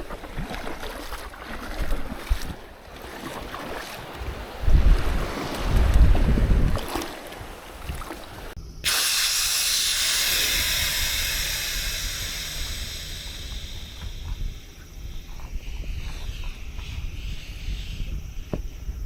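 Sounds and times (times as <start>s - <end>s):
wind rumbling on microphone: 0.0s - 8.6s, 9.4s - 19.0s
loud steady hiss: 8.7s - 15.2s.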